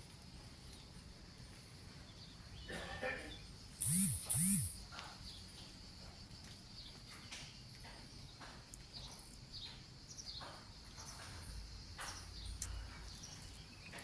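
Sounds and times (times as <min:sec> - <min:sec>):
bird chirps: 0:02.5 - 0:05.4
high-pitched insect drone: 0:03.7 - 0:05.0.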